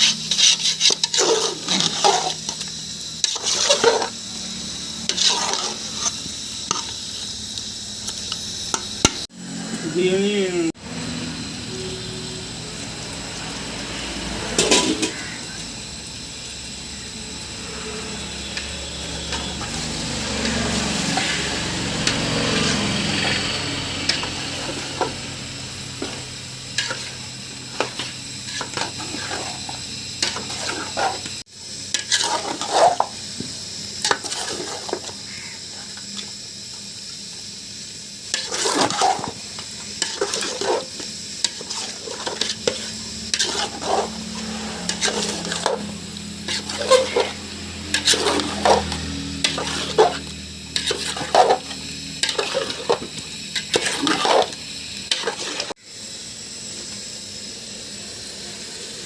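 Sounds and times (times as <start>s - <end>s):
spoon scraping a pan: 0.0s - 7.3s, 14.5s - 15.6s, 17.6s - 36.3s, 38.3s - 55.8s
food sizzling: 0.0s - 59.0s.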